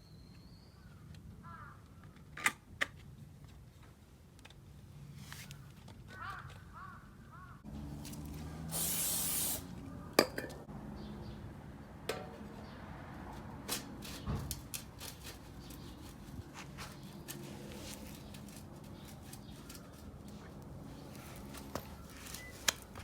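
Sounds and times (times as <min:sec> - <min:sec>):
aerosol spray hissing: 0:08.7 - 0:09.8
metal tools clinking: 0:21.3 - 0:23.0.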